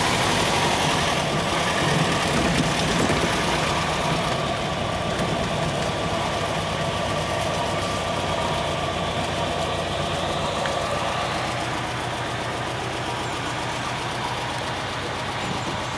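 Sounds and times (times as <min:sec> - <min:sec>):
car engine running at low revs: 0:00.0 - 0:15.9.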